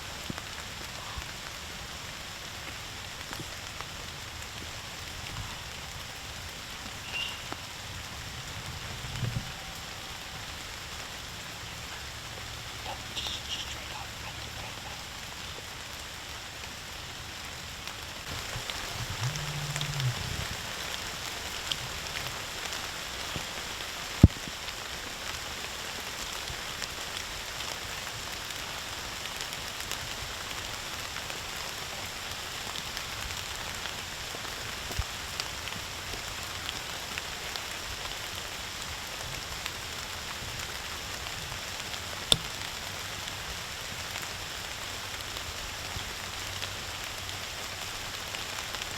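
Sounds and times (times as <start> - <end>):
rain pattering: 0.0 - 48.9.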